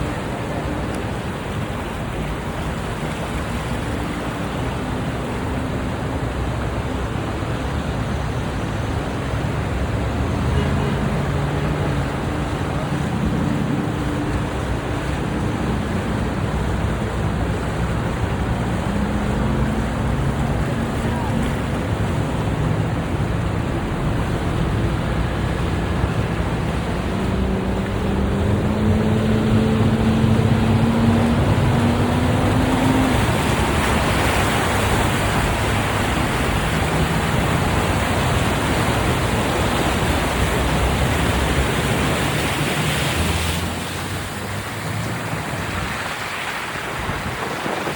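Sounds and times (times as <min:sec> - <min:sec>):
passing traffic: 0:00.0 - 0:47.9
tyres hissing on wet road: 0:00.0 - 0:47.9
wind: 0:00.0 - 0:47.9
vehicle engine speeding up: 0:22.1 - 0:46.1.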